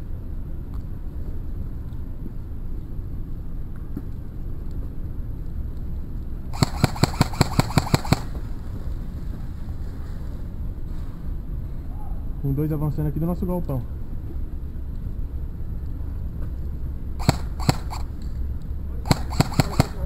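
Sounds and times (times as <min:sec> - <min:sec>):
steady low rumble: 0:00.0 - 0:20.0
airsoft rifle rapid shots: 0:06.5 - 0:08.6, 0:17.2 - 0:18.2, 0:19.0 - 0:20.0.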